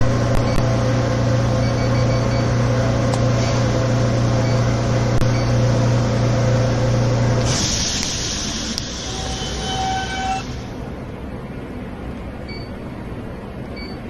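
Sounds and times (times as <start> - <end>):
low electrical hum: 0.0 - 14.0
air hissing: 7.4 - 10.8.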